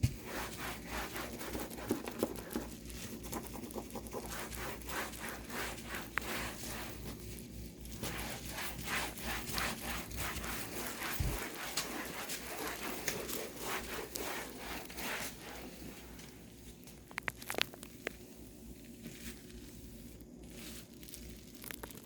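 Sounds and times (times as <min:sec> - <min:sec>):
rubbing or wiping strokes: 0:00.1 - 0:16.2.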